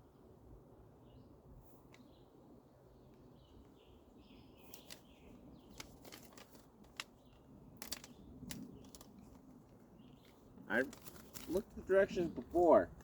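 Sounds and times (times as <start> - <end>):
plastic packaging crinkling: 5.7 - 7.2, 10.9 - 11.8.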